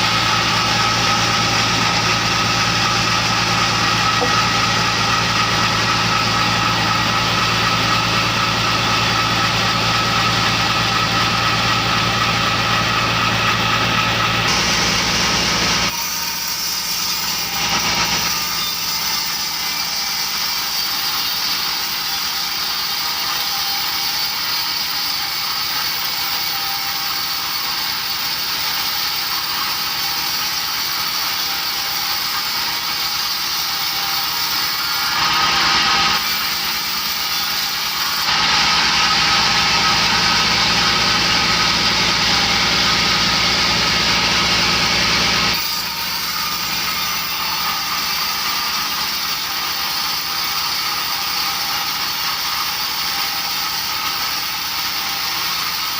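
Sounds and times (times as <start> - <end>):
hissing machine noise: 0.0 - 22.4, 34.2 - 50.7
sawmill engine humming: 0.0 - 55.9.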